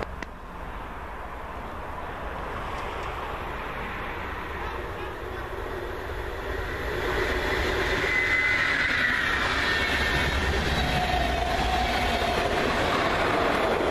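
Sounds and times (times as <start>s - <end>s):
train wheels rolling on rails: 0.0s - 13.9s
high wheel squeal: 6.5s - 13.9s.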